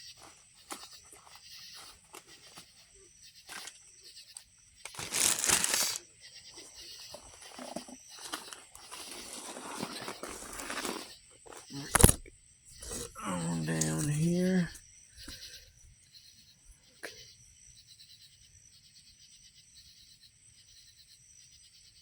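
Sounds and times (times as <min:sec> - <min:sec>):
light rustling of tinder: 0:00.0 - 0:12.2
scraping rustle: 0:04.9 - 0:06.0, 0:06.6 - 0:14.4.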